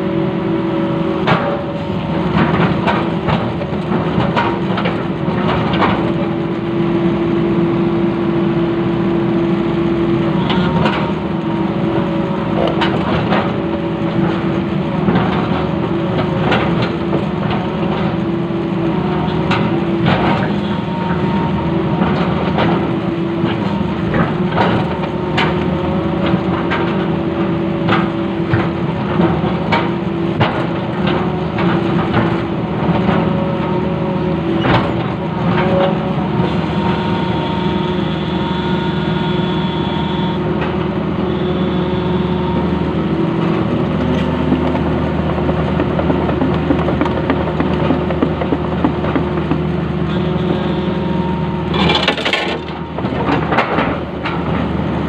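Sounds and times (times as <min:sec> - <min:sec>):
excavator diesel engine: 0:00.0 - 0:55.0
debris cracking and knocking: 0:44.2 - 0:49.7.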